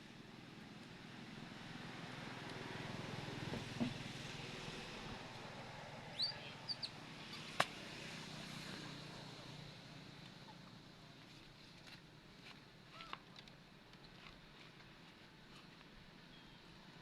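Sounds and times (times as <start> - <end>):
high-pitched animal squeaks: 6.2 - 6.9.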